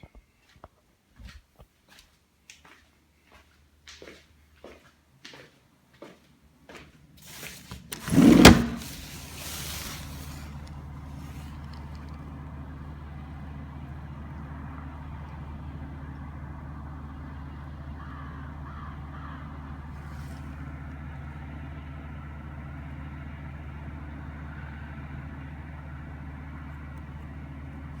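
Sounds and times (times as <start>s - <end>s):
scrape and clatter: 7.2s - 11.9s
truck engine idling: 7.2s - 28.0s.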